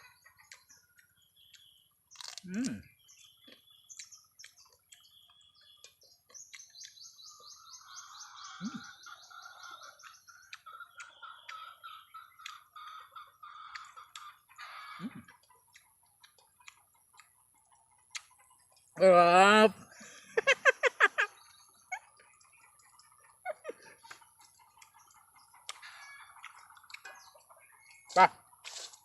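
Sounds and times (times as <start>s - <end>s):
faint birds chirping: 0.0s - 29.0s.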